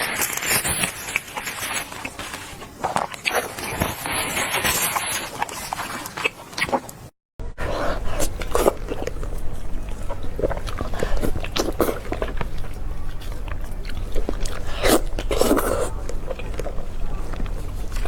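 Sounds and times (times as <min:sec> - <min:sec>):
biting and chewing: 0:00.0 - 0:18.0.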